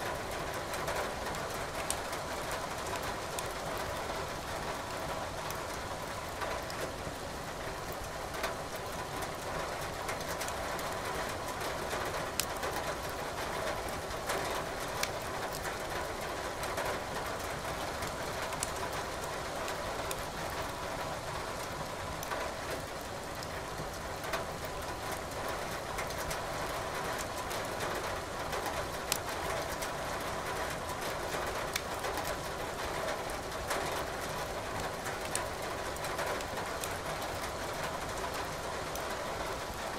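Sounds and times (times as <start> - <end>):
falling rain hiss: 0.0 - 39.9
wood fire crackling: 15.0 - 15.6, 31.7 - 32.0.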